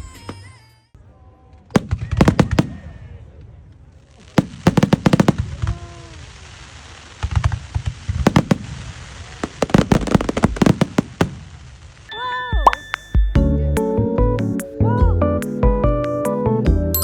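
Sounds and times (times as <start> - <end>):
fireworks bangs and crackles: 1.6 - 13.4.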